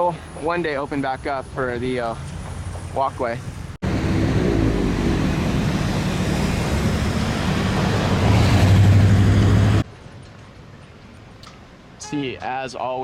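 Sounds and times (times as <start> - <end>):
heavy vehicle engine humming: 0.0 - 9.8
tyre and street noise: 0.0 - 13.0.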